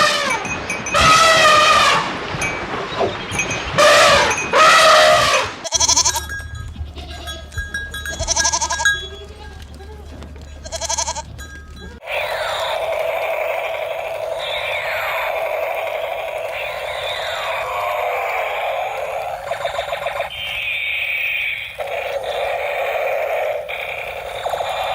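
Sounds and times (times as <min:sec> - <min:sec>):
farm animal calls: 0:00.0 - 0:24.9
low hum: 0:05.8 - 0:20.8.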